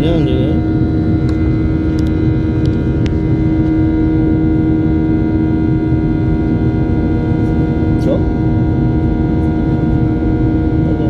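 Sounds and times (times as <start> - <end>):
airplane engines humming in cabin: 0.0 - 11.0.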